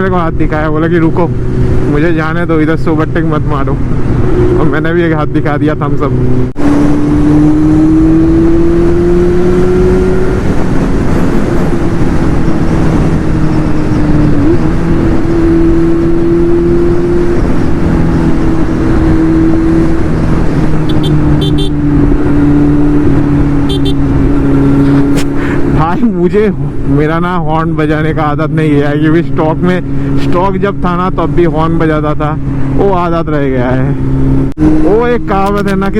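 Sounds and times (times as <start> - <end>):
motorcycle engine cruising: 0.0 - 35.9
wind rushing: 6.1 - 25.8.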